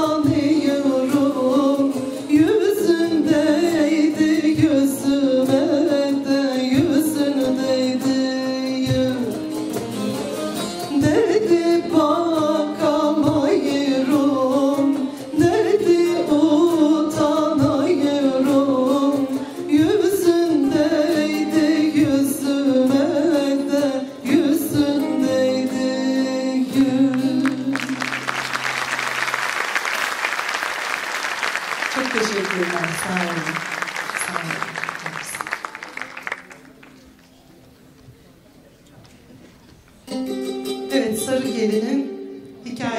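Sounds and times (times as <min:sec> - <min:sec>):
person singing folk song: 0:00.0 - 0:29.4, 0:40.1 - 0:42.9
plucked lute accompaniment: 0:00.0 - 0:29.8, 0:39.7 - 0:42.9
audience applause: 0:27.4 - 0:37.3.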